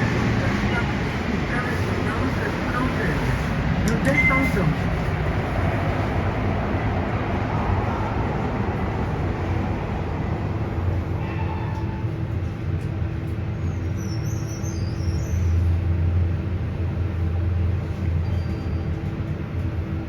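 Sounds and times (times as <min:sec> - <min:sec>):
elevator hum and rumble: 0:00.0 - 0:20.0
faint high squeal: 0:18.2 - 0:19.0.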